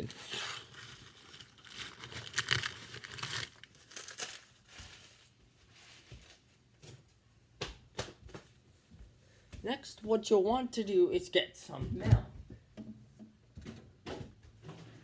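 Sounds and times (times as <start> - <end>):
paper towels rustling and tearing: 0.0 - 6.7.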